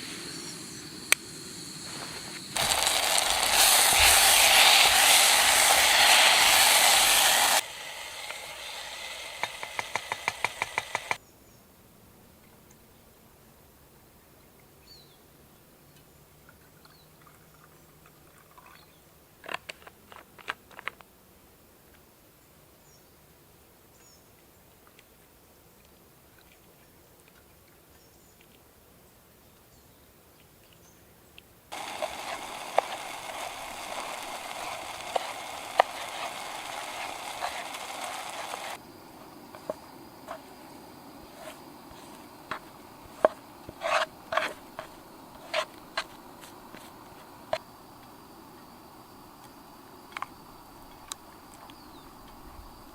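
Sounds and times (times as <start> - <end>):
pasta cooking hiss with pops: 0.0 - 11.2, 31.7 - 52.9.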